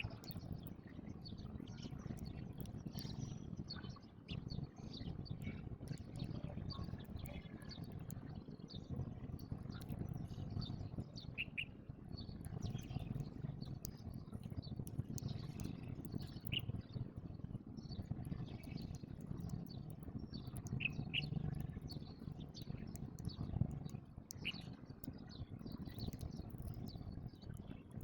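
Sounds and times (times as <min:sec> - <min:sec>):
low background rumble: 0:00.0 - 0:28.0
sparrows chirping: 0:09.8 - 0:16.8, 0:17.9 - 0:23.6, 0:24.3 - 0:24.6.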